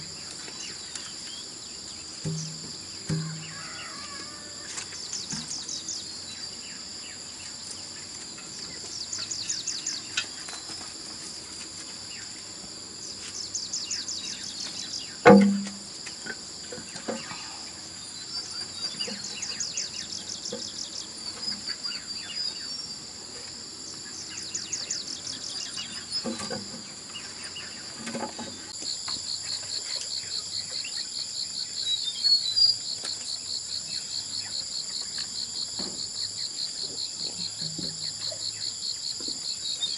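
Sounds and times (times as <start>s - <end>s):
insects chirping and trilling: 0.0s - 39.9s
loud thump: 2.2s - 3.6s, 15.3s - 15.8s.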